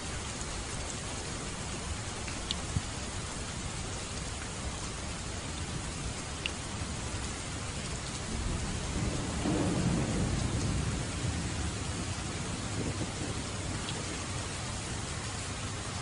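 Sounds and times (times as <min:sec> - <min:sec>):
heavy rain: 0:00.0 - 0:16.0
low roll of thunder: 0:08.2 - 0:15.6.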